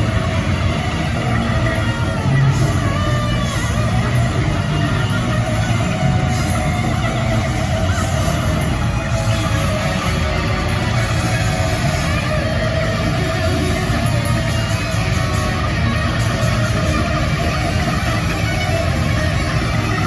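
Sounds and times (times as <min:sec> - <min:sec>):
distorted electric guitars: 0:00.0 - 0:20.0
heavy metal band playing: 0:00.0 - 0:20.0.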